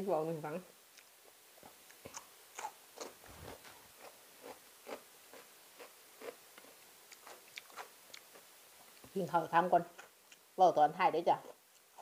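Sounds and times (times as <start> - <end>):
person chewing crunchy food: 1.7 - 9.1.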